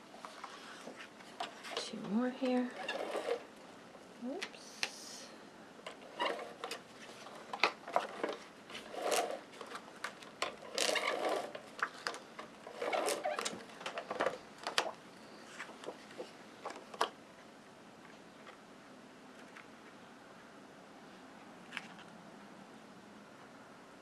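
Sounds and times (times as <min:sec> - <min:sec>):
paper rustling and sliding: 0:00.1 - 0:01.8, 0:06.2 - 0:16.4.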